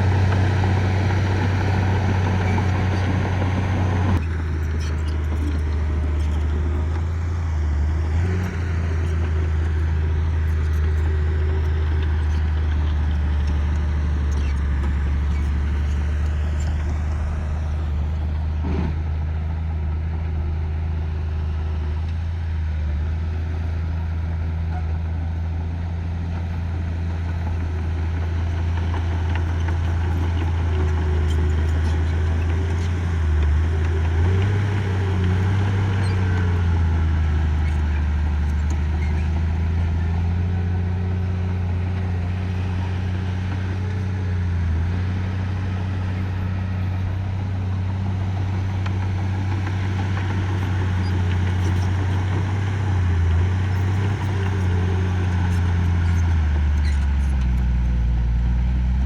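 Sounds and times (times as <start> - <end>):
heavy machine diesel engine: 0.0 - 59.0.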